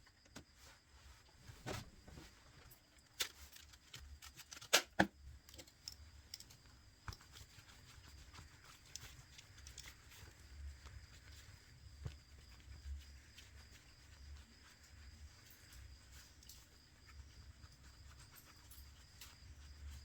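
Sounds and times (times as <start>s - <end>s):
small clicks and taps of tools: 3.2s - 7.4s.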